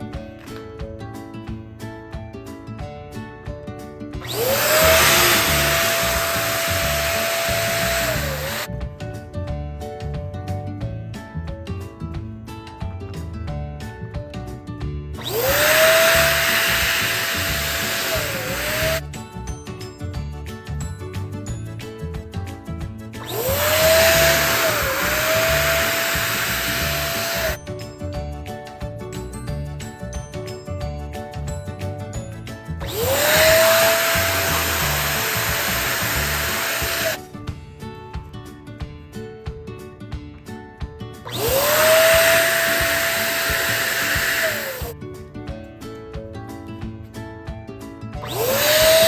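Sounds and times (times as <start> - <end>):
background music with steady beat: 0.0 - 49.0
electric balloon pump motor whine: 4.2 - 8.7, 15.2 - 19.0, 23.2 - 27.6, 32.8 - 37.2, 41.3 - 44.9, 48.2 - 49.0.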